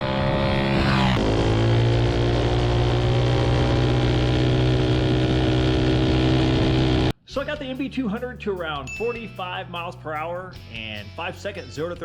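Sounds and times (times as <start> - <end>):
small single-cylinder engine running: 0.1 - 7.1.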